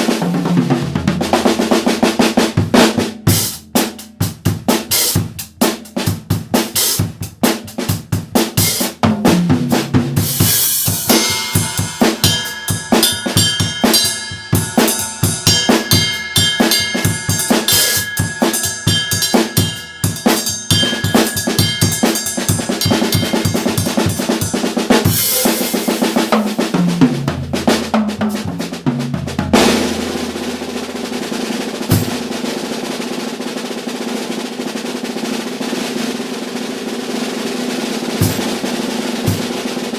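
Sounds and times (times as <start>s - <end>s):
drum kit played fast: 0.0s - 39.9s
ringing cymbals: 10.4s - 26.3s.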